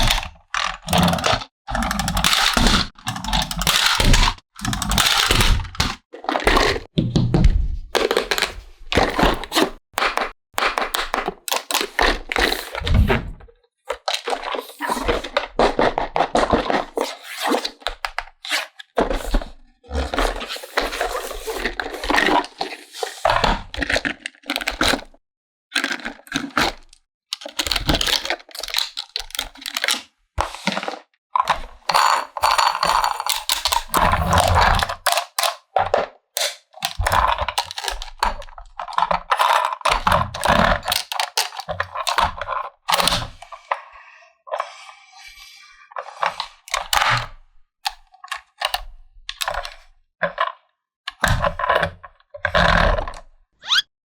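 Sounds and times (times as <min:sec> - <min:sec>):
plastic toy pieces clicking: 0:00.6 - 0:06.7, 0:31.9 - 0:35.7, 0:36.4 - 0:42.5.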